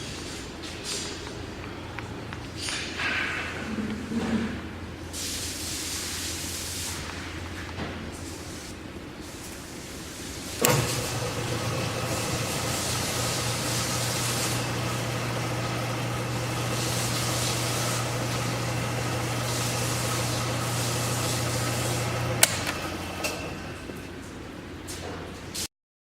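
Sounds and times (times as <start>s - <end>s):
switch click: 10.6s - 11.0s, 22.2s - 23.4s
mill-drill motor humming and whining: 10.6s - 24.0s.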